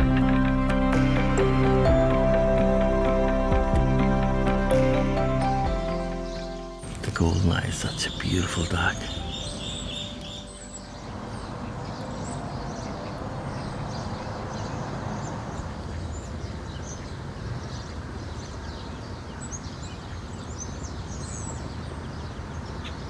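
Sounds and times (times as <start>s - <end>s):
small birds chirping: 6.3s - 23.0s.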